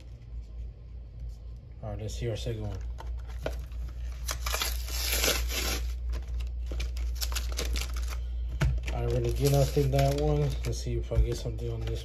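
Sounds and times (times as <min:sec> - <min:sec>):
plastic packaging crinkling and tearing: 0:03.0 - 0:11.0.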